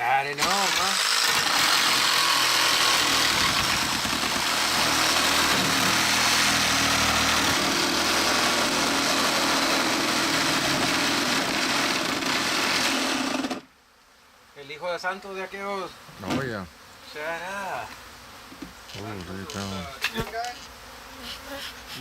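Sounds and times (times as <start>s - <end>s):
motor running: 0.4s - 13.7s.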